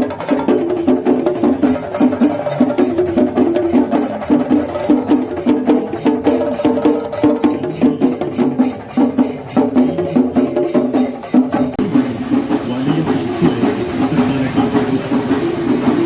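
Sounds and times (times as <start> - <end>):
drum stick strokes: 0.0 - 16.0
pitched melody line: 11.8 - 16.0.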